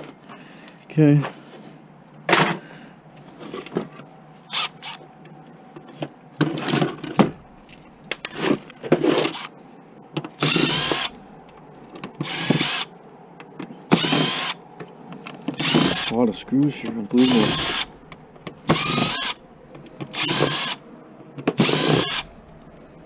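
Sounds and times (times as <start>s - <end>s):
power drill driving screws: 4.5s - 5.0s, 9.1s - 9.5s, 10.4s - 11.1s, 12.2s - 12.9s, 13.9s - 14.6s, 15.6s - 16.2s, 17.2s - 17.9s, 18.7s - 19.4s, 20.1s - 20.8s, 21.5s - 22.3s
parts knocking and clicking: 13.4s - 22.7s.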